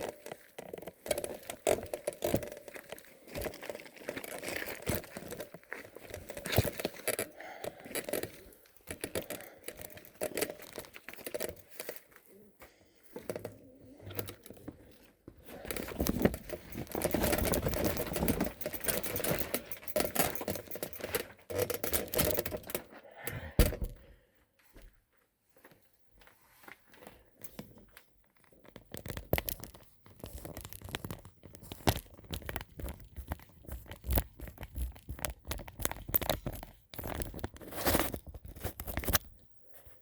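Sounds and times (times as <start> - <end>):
handling noise on microphone: 13.2 - 24.0, 28.9 - 40.0.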